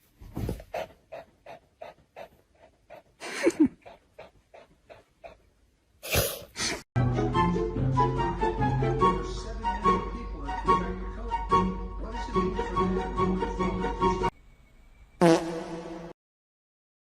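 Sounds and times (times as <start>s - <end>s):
dog panting: 0.3s - 5.5s
music: 7.0s - 14.3s.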